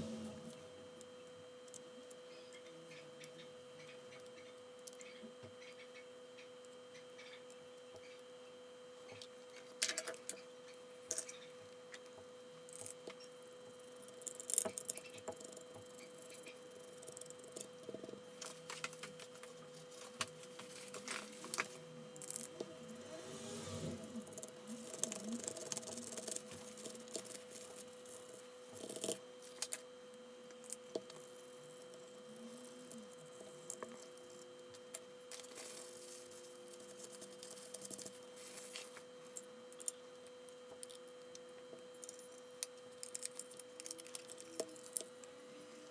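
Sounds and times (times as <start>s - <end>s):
faint steady hum: 0.0s - 45.9s
small tools and plastic parts handled: 34.9s - 41.4s, 42.0s - 45.2s.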